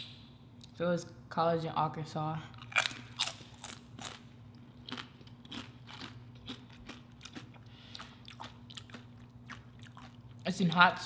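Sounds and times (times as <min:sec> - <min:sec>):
tortilla chips crunching: 0:02.6 - 0:10.4.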